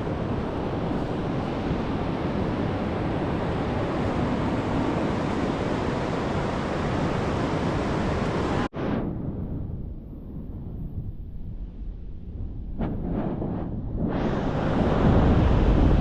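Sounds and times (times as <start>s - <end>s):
ocean surf: 0.0s - 8.7s, 14.1s - 16.0s
wind buffeting microphone: 0.0s - 16.0s.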